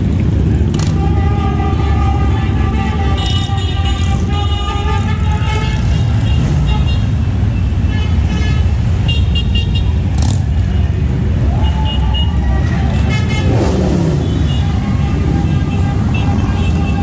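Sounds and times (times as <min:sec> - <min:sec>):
horn toots: 0:00.6 - 0:10.8, 0:11.5 - 0:17.0
motorcycles rumbling past: 0:12.4 - 0:17.0.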